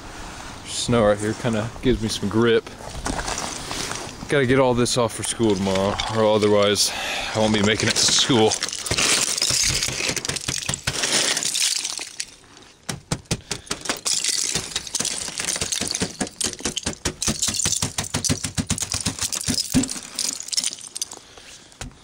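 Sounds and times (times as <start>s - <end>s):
ice scraping: 2.8s - 12.8s
ice cracking and clinking: 5.2s - 12.8s, 13.6s - 21.4s.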